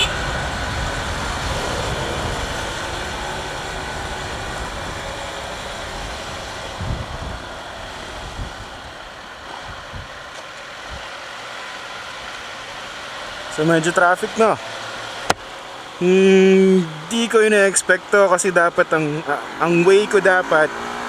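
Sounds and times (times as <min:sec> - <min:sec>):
motorcycle engine running: 0:00.0 - 0:08.0
wind noise: 0:00.0 - 0:10.3.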